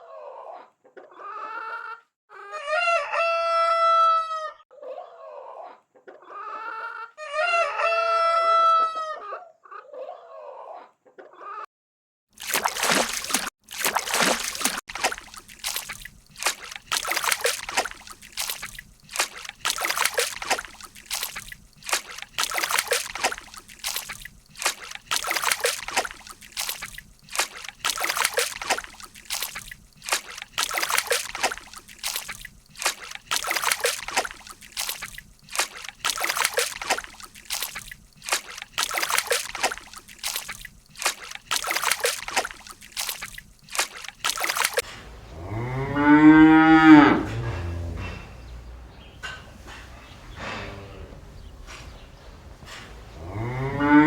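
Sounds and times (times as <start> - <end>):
water splashing and sloshing: 12.3 - 54.0.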